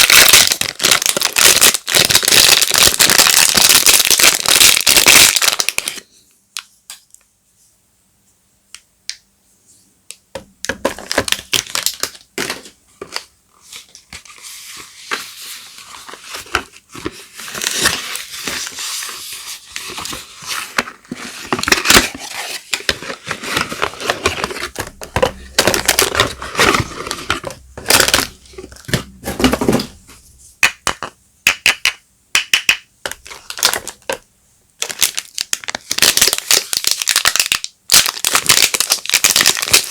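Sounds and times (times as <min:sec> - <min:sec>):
wrappers crinkling and tearing: 0:00.0 - 0:06.0, 0:11.0 - 0:24.7, 0:33.2 - 0:34.1, 0:34.8 - 0:39.9.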